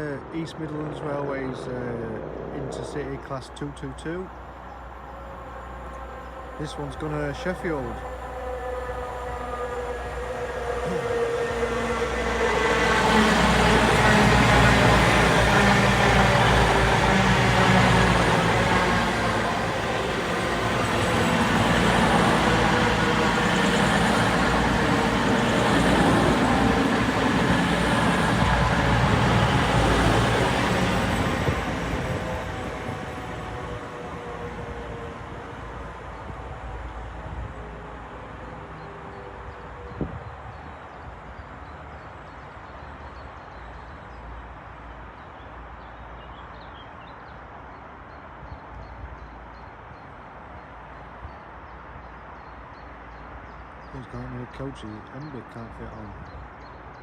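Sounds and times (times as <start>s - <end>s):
steady rumbling noise: 0.0s - 11.6s
diesel train passing: 0.0s - 57.0s.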